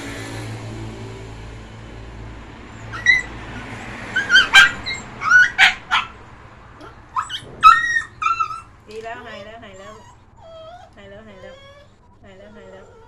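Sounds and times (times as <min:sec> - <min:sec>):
dog whimpering and yipping: 0:02.8 - 0:06.2, 0:06.8 - 0:13.0.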